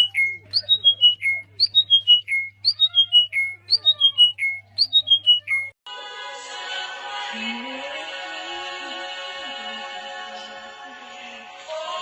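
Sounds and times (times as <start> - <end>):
songbird whistling: 0.0 - 5.8.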